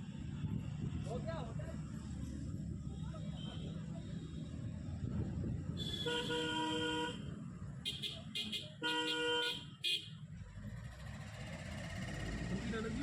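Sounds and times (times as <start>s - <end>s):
vehicle horn honking: 5.8s - 7.2s, 7.9s - 10.2s.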